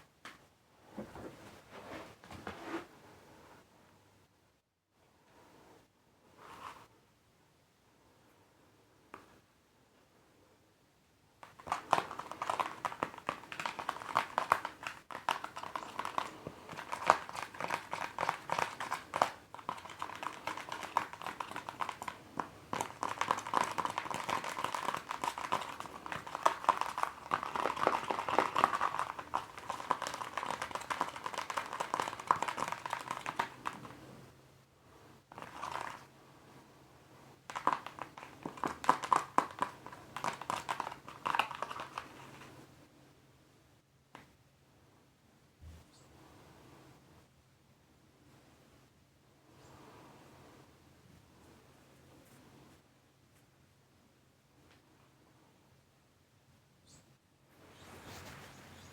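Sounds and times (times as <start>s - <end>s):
rapid tapping on a mask: 11.4s - 34.1s, 35.3s - 36.1s, 37.5s - 42.6s.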